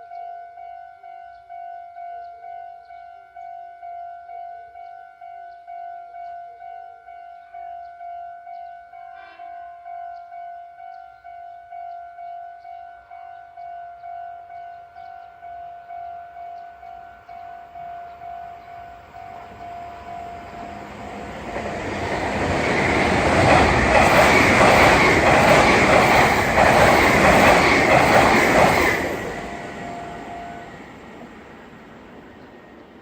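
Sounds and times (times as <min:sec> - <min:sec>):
train passing at speed: 0:17.2 - 0:33.0.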